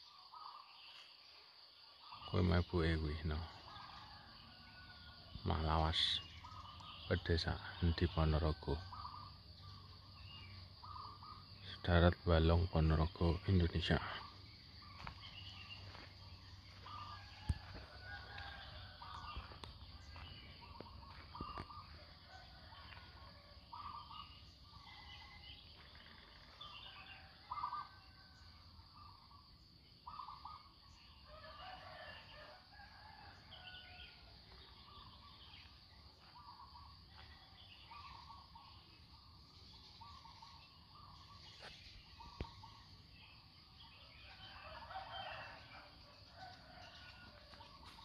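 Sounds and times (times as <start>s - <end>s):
high insect drone: 0.0s - 48.0s
small birds chirping: 0.0s - 48.0s
roosters crowing: 3.2s - 5.9s, 15.8s - 28.7s, 31.1s - 35.2s, 44.0s - 48.0s.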